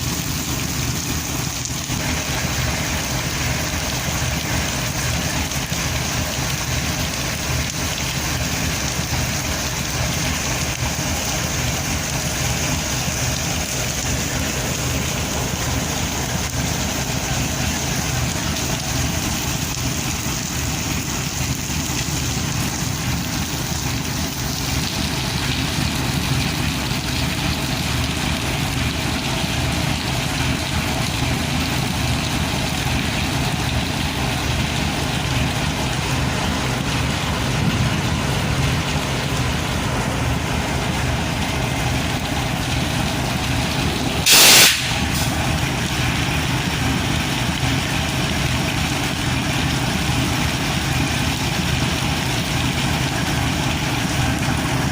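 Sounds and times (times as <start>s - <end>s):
diesel locomotive engine idling: 0.0s - 54.9s
heavy rain hissing: 0.0s - 54.9s
sudden loud hiss: 44.2s - 45.5s.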